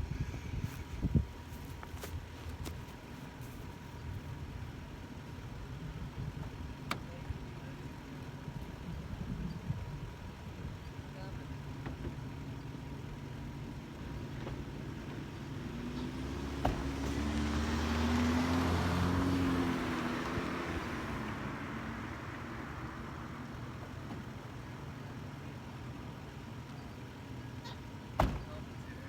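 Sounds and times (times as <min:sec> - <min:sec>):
vehicle passing by: 0:15.7 - 0:23.9.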